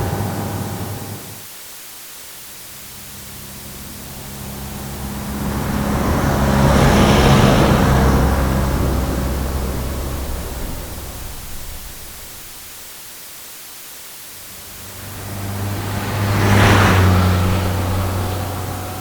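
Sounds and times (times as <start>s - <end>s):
truck passing by: 2.8s - 12.8s, 14.5s - 19.0s.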